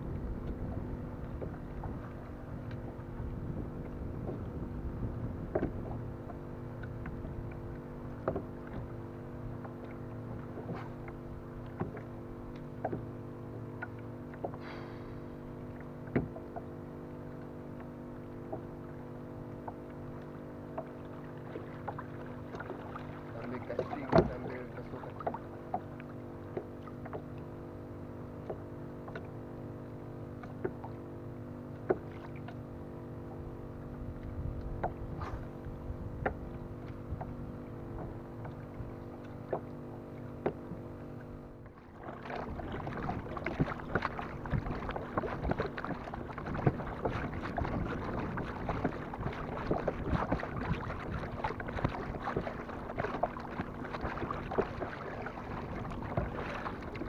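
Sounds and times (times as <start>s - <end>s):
steady low hum: 0.0s - 57.0s
water noise: 0.0s - 57.0s
knocks and taps on kayak: 0.4s - 2.0s, 2.6s - 4.6s, 5.4s - 13.2s, 13.8s - 14.6s, 16.0s - 16.8s, 17.4s - 18.8s, 23.4s - 27.5s, 28.4s - 29.4s, 30.3s - 31.0s, 31.7s - 32.6s, 34.1s - 35.4s, 36.0s - 41.3s, 42.2s - 57.0s.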